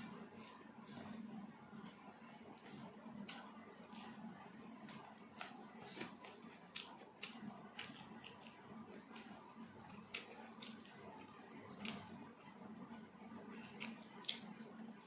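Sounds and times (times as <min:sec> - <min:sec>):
chewing and mouth smacks: 0:02.6 - 0:12.7, 0:13.5 - 0:15.0.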